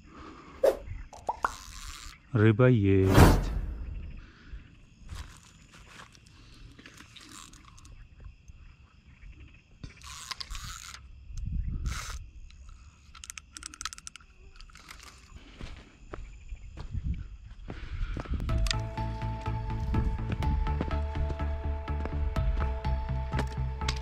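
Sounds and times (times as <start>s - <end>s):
fishing reel clicking: 1.2s - 2.2s, 6.9s - 7.9s, 9.9s - 11.1s, 11.8s - 15.2s.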